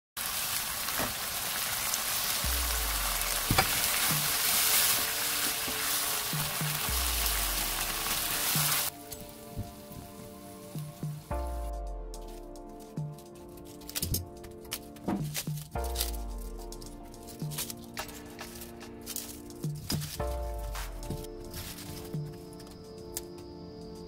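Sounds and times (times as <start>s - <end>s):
food sizzling in a frying pan: 0.2s - 9.0s
soft background music: 2.4s - 24.0s.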